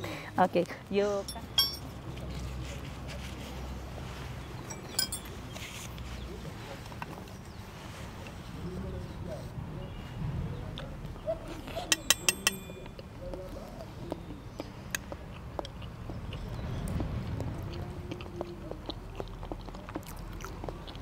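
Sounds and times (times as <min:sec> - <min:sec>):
forks clicking against plates: 0:04.7 - 0:05.4, 0:11.9 - 0:13.0
close-up chewing of food: 0:12.9 - 0:21.0.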